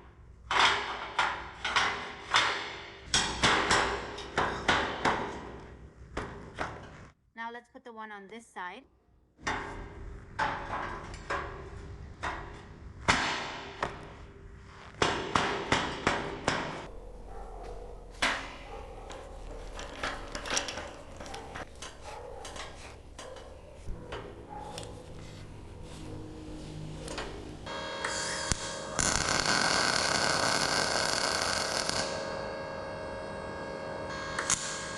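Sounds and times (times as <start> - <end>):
metal knocks and clanks: 0.4 - 5.6, 9.4 - 14.0, 17.8 - 24.7.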